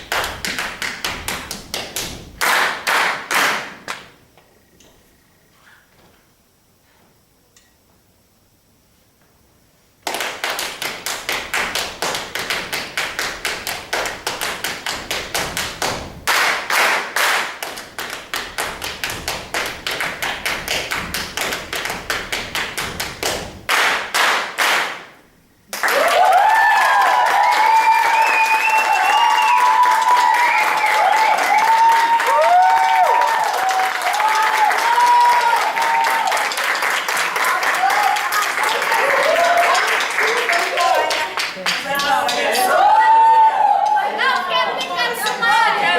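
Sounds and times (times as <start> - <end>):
rhythmic taps and claps: 0.0 - 4.2, 10.0 - 42.5
applause with cheering: 25.7 - 42.9.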